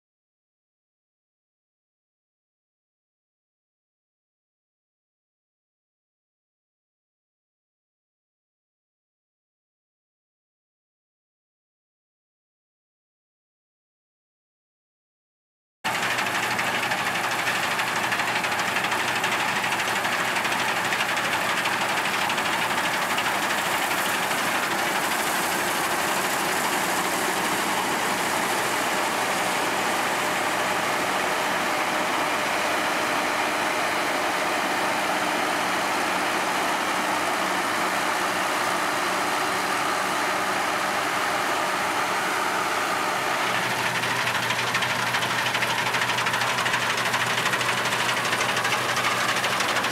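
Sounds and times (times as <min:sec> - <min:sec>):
diesel engine under load: 0:15.9 - 0:49.9.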